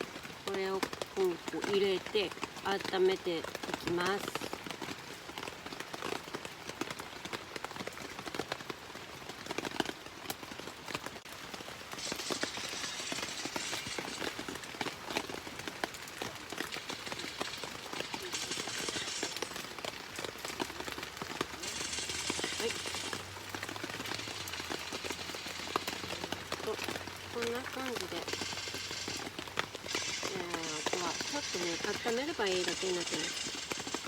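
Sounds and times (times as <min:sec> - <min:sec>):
rain tapping: 0:00.0 - 0:34.0
steady high hiss: 0:11.9 - 0:14.9, 0:16.7 - 0:19.8, 0:21.5 - 0:34.0.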